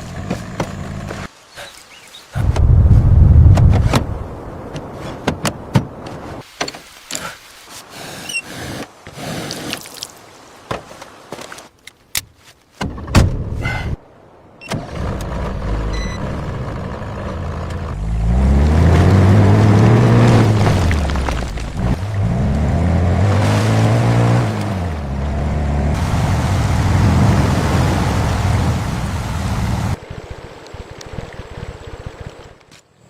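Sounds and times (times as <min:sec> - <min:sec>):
heavy vehicle engine revving: 0:14.8 - 0:30.0.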